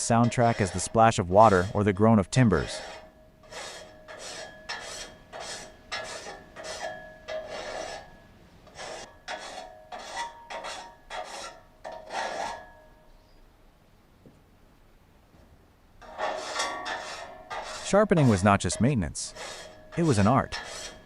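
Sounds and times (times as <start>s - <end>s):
file rasping on saw teeth: 0.0s - 1.9s, 2.5s - 8.1s, 8.7s - 12.7s, 16.0s - 21.0s
faint metallic ringing: 2.1s - 11.0s, 11.8s - 13.6s.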